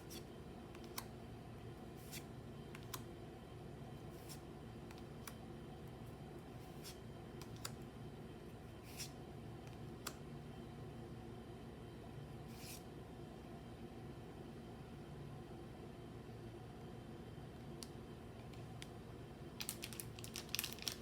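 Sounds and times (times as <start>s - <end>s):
cards clicking and swishing: 0.0s - 1.1s, 2.0s - 3.0s
steady low hum: 0.0s - 21.0s.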